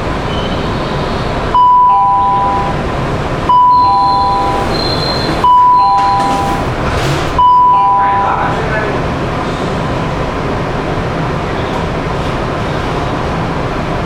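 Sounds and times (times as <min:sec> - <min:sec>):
train door ding-dong chime: 0:05.4 - 0:06.6.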